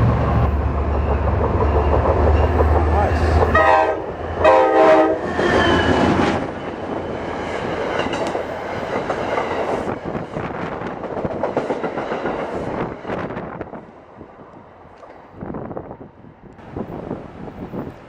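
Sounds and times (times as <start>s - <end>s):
train wheels clattering over rails: 0.0s - 3.6s, 5.2s - 13.6s
train horn blast: 3.1s - 5.3s.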